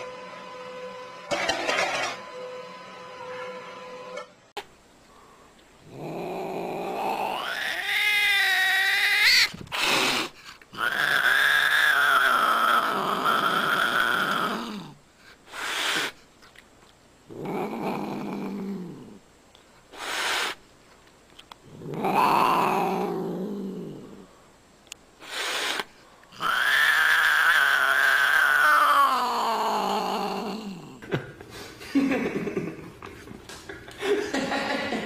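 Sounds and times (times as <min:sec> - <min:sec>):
cat growling and yowling: 0:05.9 - 0:15.0, 0:17.3 - 0:19.2, 0:21.7 - 0:24.3, 0:26.4 - 0:31.0
cat breathy bursts: 0:15.2 - 0:16.2, 0:19.9 - 0:20.6, 0:25.2 - 0:26.0.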